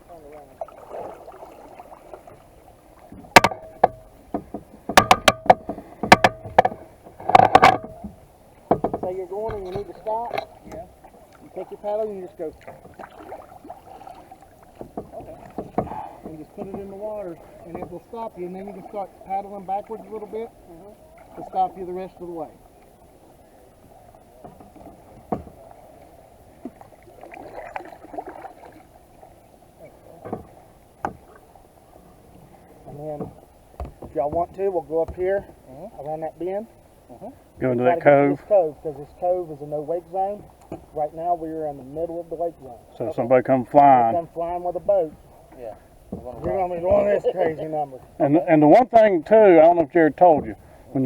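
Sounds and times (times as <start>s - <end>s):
paddle splashes and drips: 0.0s - 51.0s
paddle knocking on plastic kayak: 3.0s - 11.6s, 12.6s - 18.2s, 23.8s - 25.7s, 30.2s - 31.4s, 32.8s - 35.6s, 46.0s - 49.0s, 49.6s - 50.7s.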